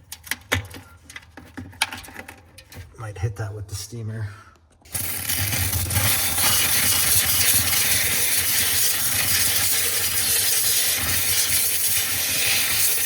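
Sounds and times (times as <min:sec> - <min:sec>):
steamer hissing: 0:04.9 - 0:13.0.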